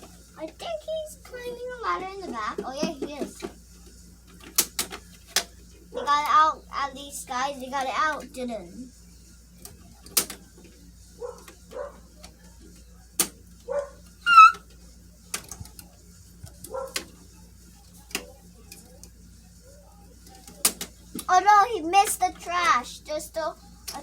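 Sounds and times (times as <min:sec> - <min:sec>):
high squeal: 0:14.2 - 0:14.6.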